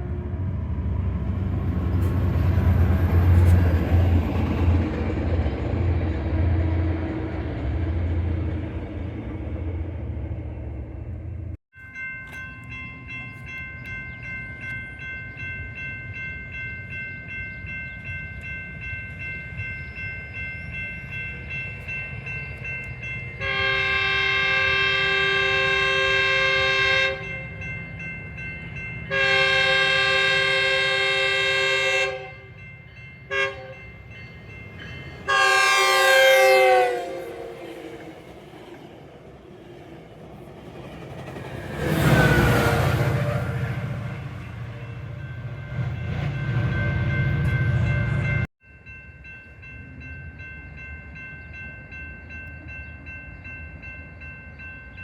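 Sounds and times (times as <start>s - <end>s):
train rumble: 0.0s - 48.5s
locomotive air horn blasts: 23.4s - 27.4s, 29.1s - 32.5s, 33.3s - 33.8s, 35.2s - 38.0s.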